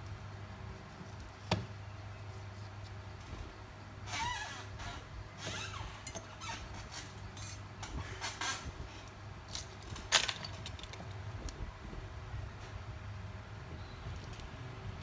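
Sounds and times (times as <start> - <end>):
metal tools clinking on bench: 9.6 - 11.1.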